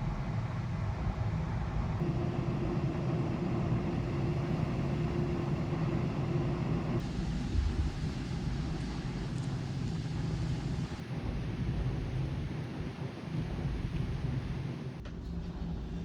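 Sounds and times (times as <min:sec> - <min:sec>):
ferry engine rumble: 0:00.0 - 0:11.0
faint steady hum: 0:00.0 - 0:16.0.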